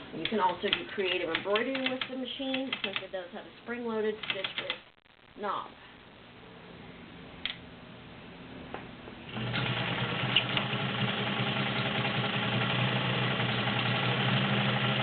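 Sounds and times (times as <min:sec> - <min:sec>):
sewing machine running: 0:09.3 - 0:15.0.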